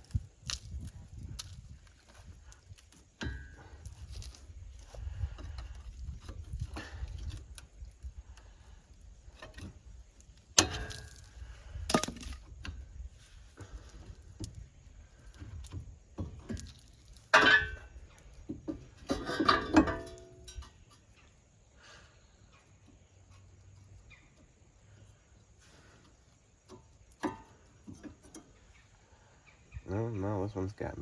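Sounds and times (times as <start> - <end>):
metal tools clinking: 17.3 - 18.0, 19.0 - 20.8.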